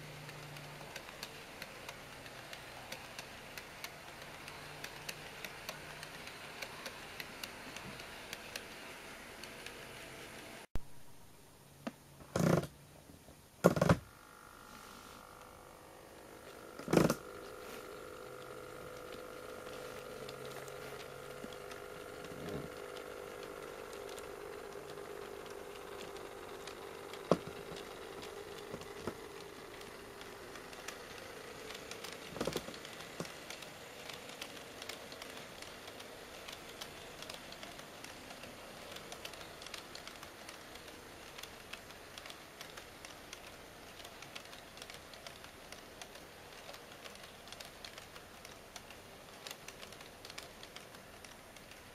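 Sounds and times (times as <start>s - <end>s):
wheels clicking over track: 0.0s - 10.7s, 15.2s - 51.9s
electric motor whine: 14.1s - 39.8s.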